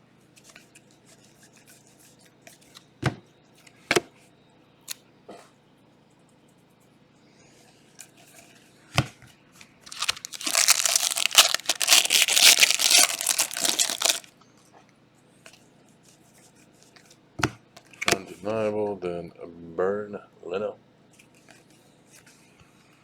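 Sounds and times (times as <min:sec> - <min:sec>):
plastic wrapper tearing and crinkling: 0:09.9 - 0:14.3.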